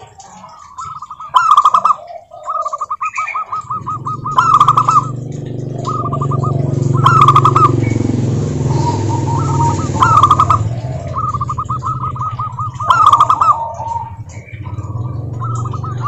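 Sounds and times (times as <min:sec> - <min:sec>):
doves cooing: 0:00.0 - 0:16.0
steady low hum: 0:03.5 - 0:16.0.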